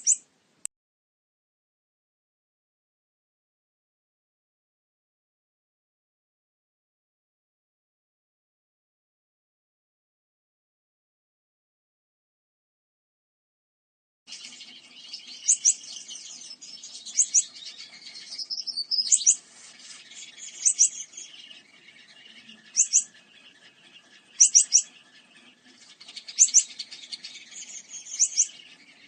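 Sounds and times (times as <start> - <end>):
high bird twittering chatter: 0.0 - 0.2, 14.3 - 29.0
sharp high bird chirps: 0.0 - 0.2, 14.3 - 29.0.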